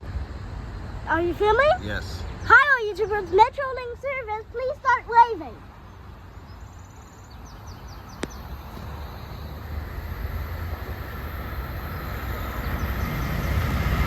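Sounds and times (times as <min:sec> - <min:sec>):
diesel train rumbling: 0:07.9 - 0:14.0.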